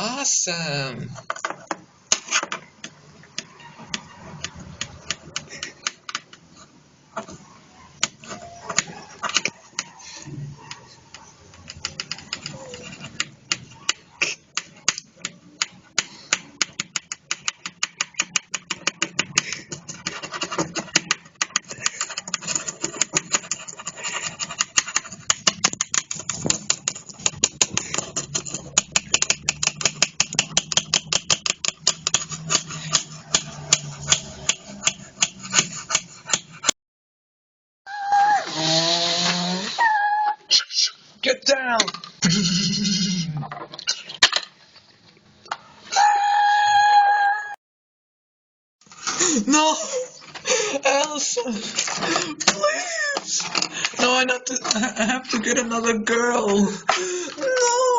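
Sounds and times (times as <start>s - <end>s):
sharp clicks or taps: 14.6s - 23.5s, 24.5s - 36.5s.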